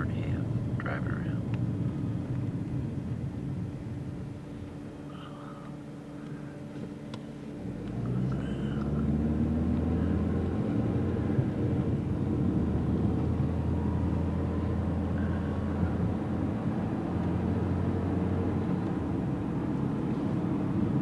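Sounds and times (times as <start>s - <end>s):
car engine: 0.0s - 21.0s
road rumble inside car: 0.0s - 21.0s.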